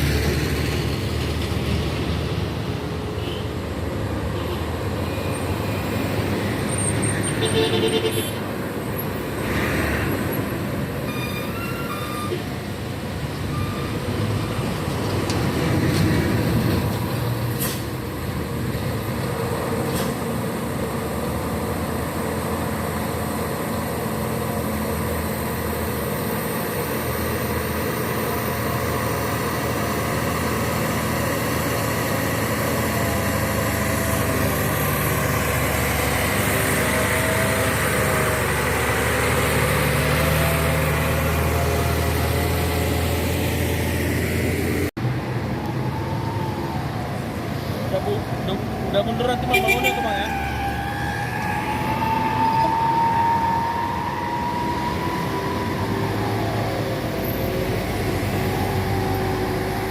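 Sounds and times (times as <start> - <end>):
diesel truck engine droning: 10.0 - 59.9.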